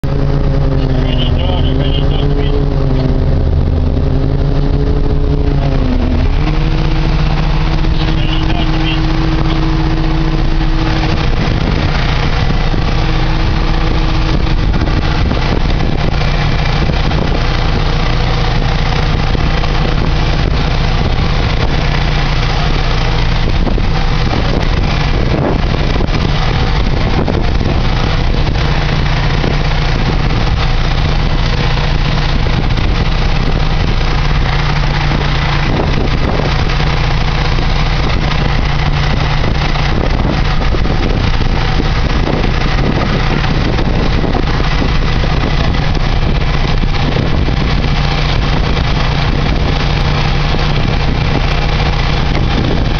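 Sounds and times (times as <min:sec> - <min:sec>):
motorboat engine running: 0:00.0 - 0:52.9.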